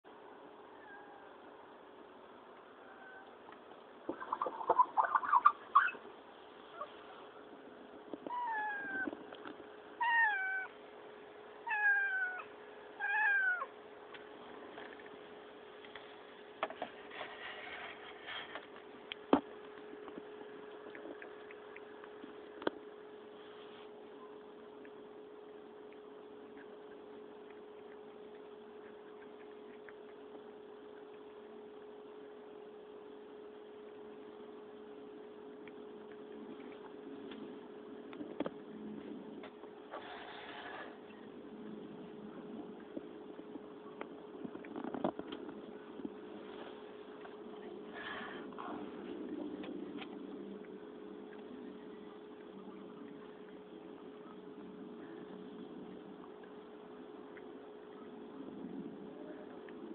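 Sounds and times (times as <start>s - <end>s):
faint steady hum: 0.0s - 59.9s
cat meowing: 8.3s - 9.1s, 10.0s - 10.8s, 11.6s - 13.7s.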